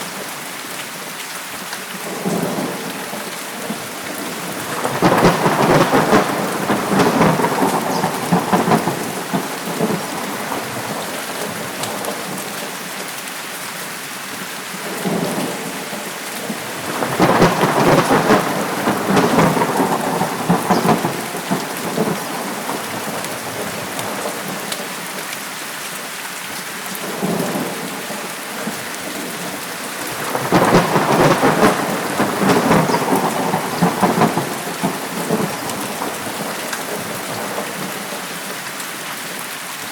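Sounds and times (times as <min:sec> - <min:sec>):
heavy rain: 0:00.0 - 0:39.9
thunder rolling: 0:02.1 - 0:12.4, 0:15.0 - 0:24.6, 0:27.0 - 0:38.3.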